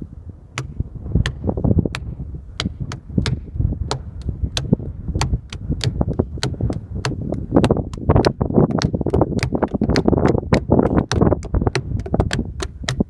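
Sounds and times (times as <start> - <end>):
wind rumble on microphone: 0.0 - 13.0
hands knocking on boulders: 0.6 - 13.0.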